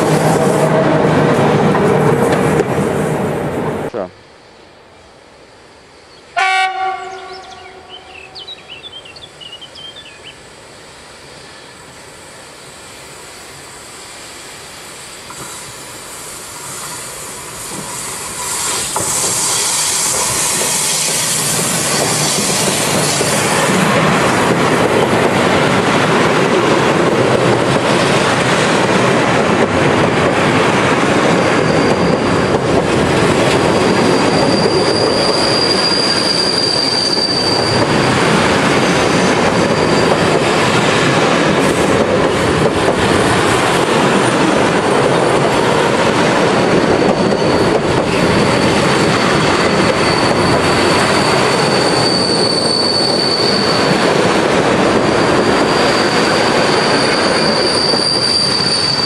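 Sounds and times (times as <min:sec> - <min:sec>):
freight train passing: 0:00.0 - 0:59.0
locomotive horn blast: 0:06.4 - 0:08.4
high wheel squeal: 0:17.9 - 0:23.8, 0:31.4 - 0:32.8, 0:33.4 - 0:38.6, 0:39.4 - 0:41.2, 0:46.5 - 0:54.0, 0:55.0 - 0:59.0.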